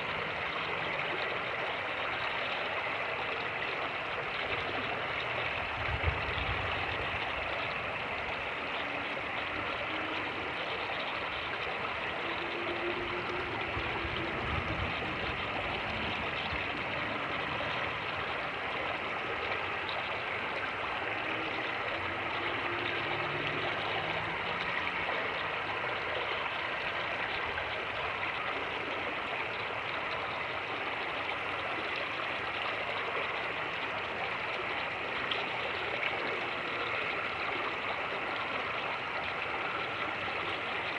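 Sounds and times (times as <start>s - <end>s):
creek water rushing over rapids: 0.0s - 40.9s.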